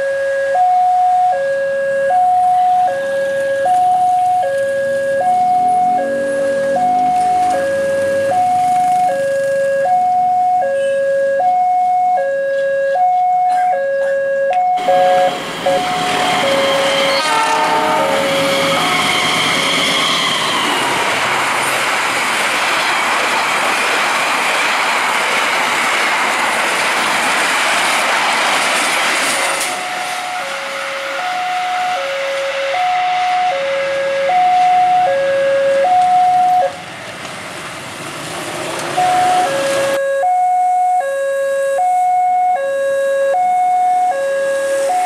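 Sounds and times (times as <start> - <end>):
level crossing alarm tones: 0.0 - 20.8, 29.7 - 36.8, 38.9 - 45.0
train passing at speed: 2.5 - 9.6, 14.8 - 40.0, 44.0 - 45.0
train horn blast: 14.8 - 20.4, 29.7 - 36.8.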